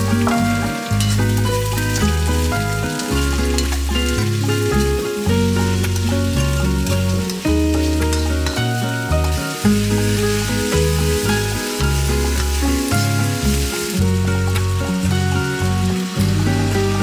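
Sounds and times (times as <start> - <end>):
background music with bass: 0.0 - 17.0
vegetables sizzling in a wok: 0.0 - 17.0
metal spatula stirring: 1.0 - 9.4.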